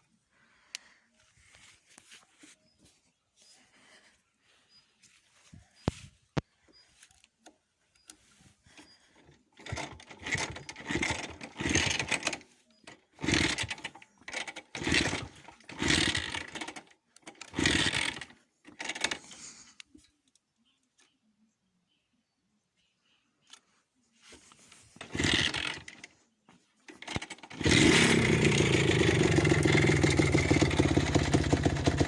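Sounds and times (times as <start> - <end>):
motorcycle engine turning over: 8.6 - 19.3, 24.7 - 26.2, 26.8 - 32.0.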